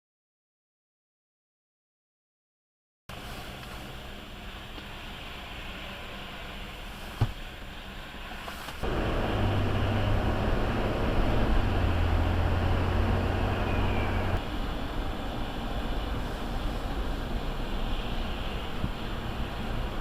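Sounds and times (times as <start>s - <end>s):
car engine and road noise: 3.1s - 20.0s
low hum: 8.8s - 20.0s.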